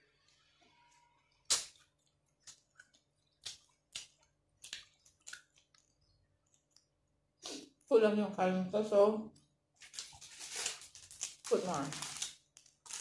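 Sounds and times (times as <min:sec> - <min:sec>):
wet chewing smacks: 0:01.8 - 0:06.9.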